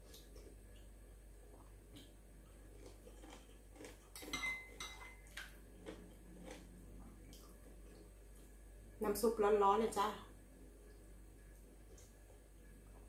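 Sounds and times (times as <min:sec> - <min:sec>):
metal spoon clinking glass bowl: 0:04.2 - 0:05.2.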